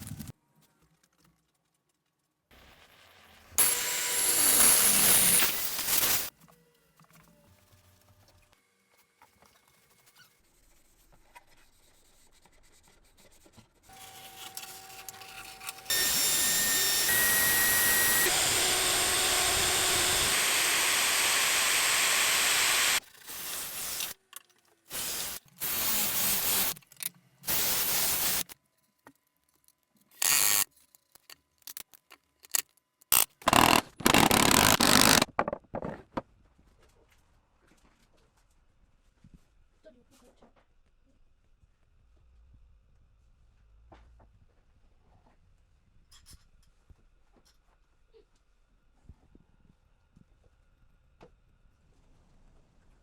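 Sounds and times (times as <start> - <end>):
woodworking power tool running: 3.6 - 6.3, 13.9 - 24.2, 33.4 - 35.3.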